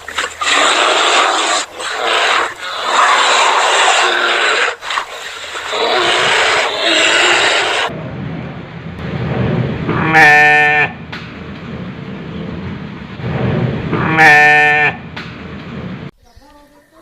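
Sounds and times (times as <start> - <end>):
steady low rumble: 7.9 - 16.1
sheep bleating: 10.0 - 11.0, 14.0 - 15.0.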